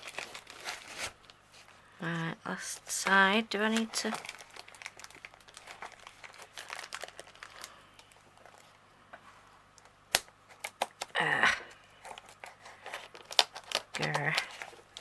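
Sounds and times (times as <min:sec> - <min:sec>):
plastic bag crinkling: 0:00.0 - 0:01.8, 0:02.6 - 0:08.8, 0:12.0 - 0:15.0.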